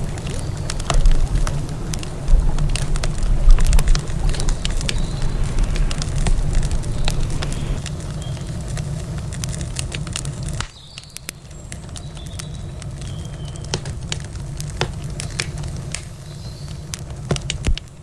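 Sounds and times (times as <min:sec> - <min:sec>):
low rumble: 0:00.0 - 0:09.3
campfire crackling: 0:00.0 - 0:18.0.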